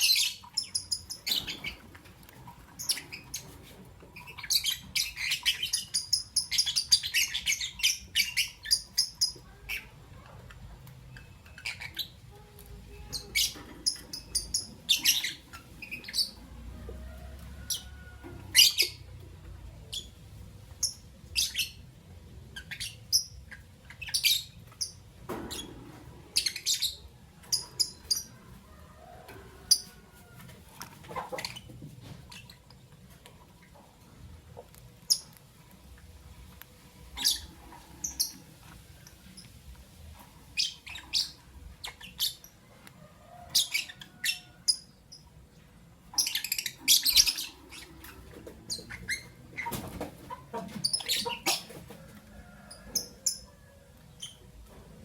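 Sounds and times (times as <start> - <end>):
lovebirds chirping: 0.0 - 10.0, 10.9 - 28.5, 37.0 - 42.7, 46.1 - 51.8.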